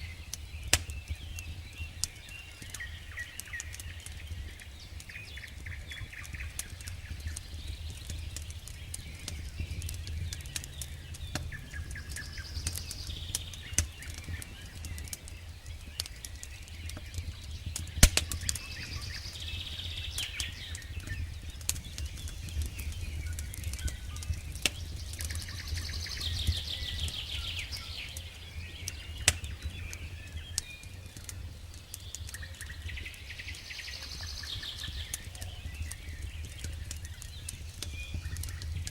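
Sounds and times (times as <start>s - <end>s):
birds singing: 0.0s - 38.9s
campfire crackling and popping: 0.0s - 38.9s.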